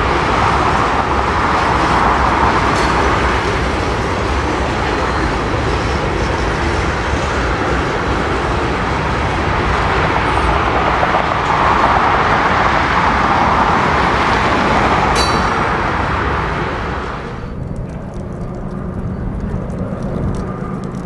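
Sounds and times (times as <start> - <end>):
freight train rumbling past: 0.0 - 18.1
high metallic squeal: 15.2 - 15.7.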